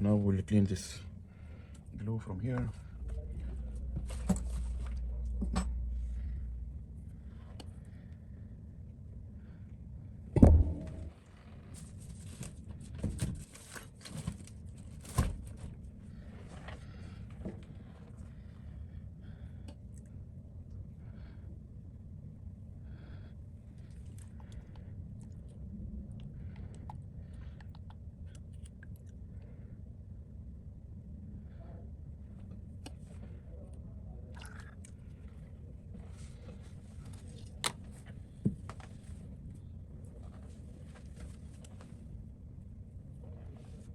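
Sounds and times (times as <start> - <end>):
low steady hum: 0.0 - 43.9
heavy thump: 3.5 - 6.8, 10.4 - 11.2.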